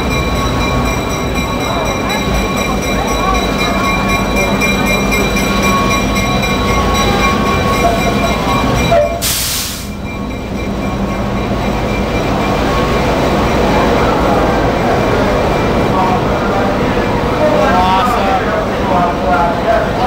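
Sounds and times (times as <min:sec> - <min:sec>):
train rumbling: 0:00.0 - 0:20.0
short hiss: 0:09.2 - 0:10.0.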